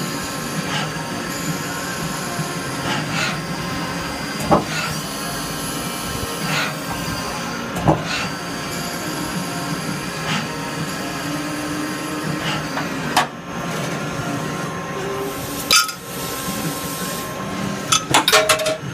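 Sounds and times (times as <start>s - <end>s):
lathe running with hum: 0.0s - 18.9s.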